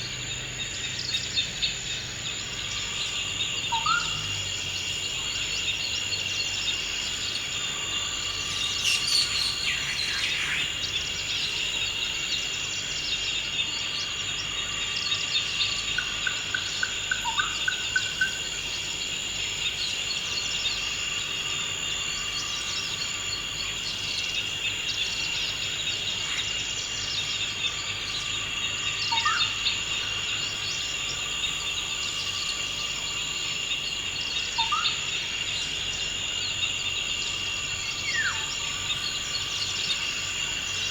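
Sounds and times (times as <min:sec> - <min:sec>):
birds chirping: 0:00.0 - 0:12.4
high-pitched insect chorus: 0:00.0 - 0:40.9
bird trill: 0:08.3 - 0:11.0.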